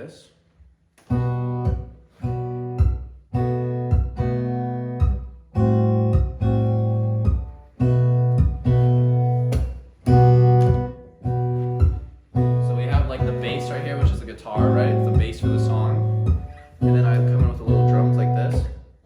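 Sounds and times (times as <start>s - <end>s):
acoustic guitar strumming chords: 1.0s - 19.0s.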